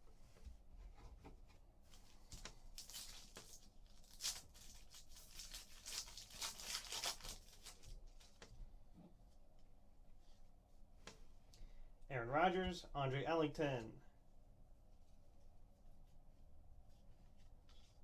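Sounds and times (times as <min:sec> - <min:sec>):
wrapper tearing and crinkling: 0:02.7 - 0:08.3.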